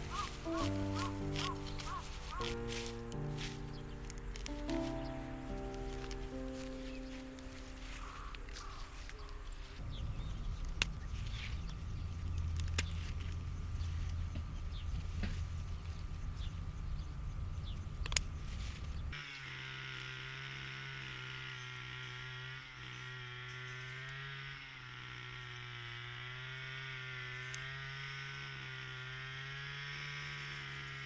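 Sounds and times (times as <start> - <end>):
rough low rumbling: 0.0 - 19.2
small engine running steadily: 0.0 - 31.0.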